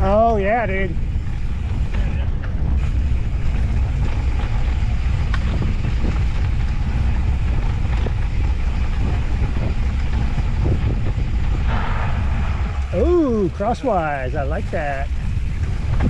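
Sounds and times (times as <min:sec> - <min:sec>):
light ticks and rattles: 0:00.0 - 0:11.8
wind rumble on microphone: 0:00.0 - 0:16.0.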